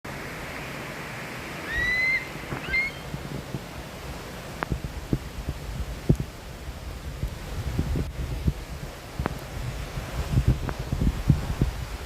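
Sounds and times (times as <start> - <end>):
low wind rumble: 0.0 - 12.0
bird whistling call: 1.6 - 3.1.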